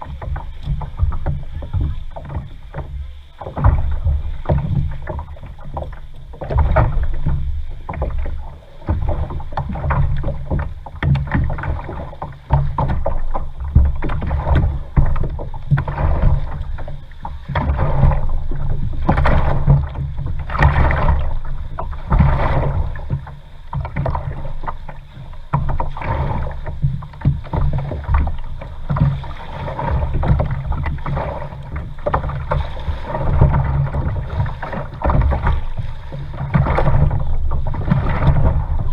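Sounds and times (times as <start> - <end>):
paddle splashing water: 0.0 - 38.9
heavy low rumble: 23.9 - 38.9.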